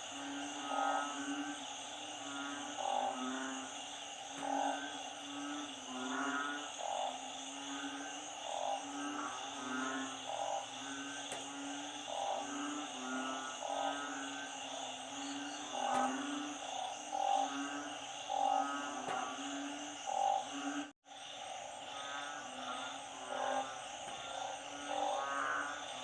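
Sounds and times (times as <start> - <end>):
frogs calling: 0.0 - 26.0.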